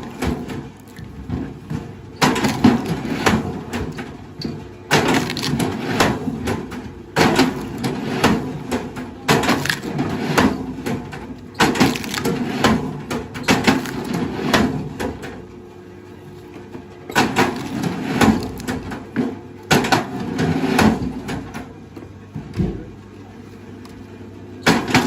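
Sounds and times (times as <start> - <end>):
wood cracking and splintering: 4.9 - 6.2, 9.3 - 10.6, 11.6 - 12.8, 13.5 - 14.2.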